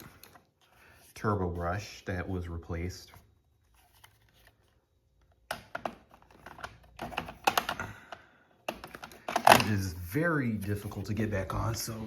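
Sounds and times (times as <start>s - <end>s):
plastic clicks and knocks: 5.4s - 7.9s.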